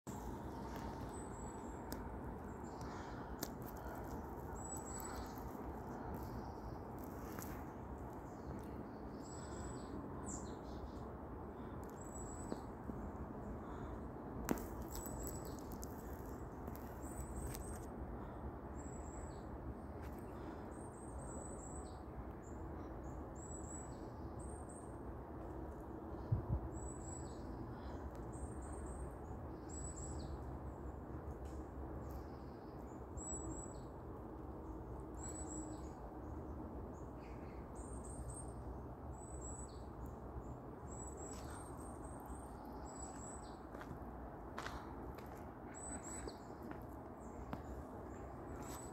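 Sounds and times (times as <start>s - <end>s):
small birds chirping: 0.1s - 12.8s, 35.1s - 48.9s.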